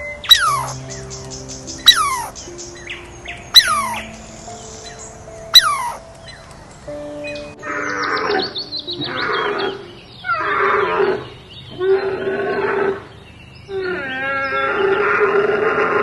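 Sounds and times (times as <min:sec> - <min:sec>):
animal calling loudly: 0:00.3 - 0:00.8, 0:01.8 - 0:02.4, 0:03.6 - 0:04.0, 0:05.5 - 0:06.0, 0:13.7 - 0:16.0.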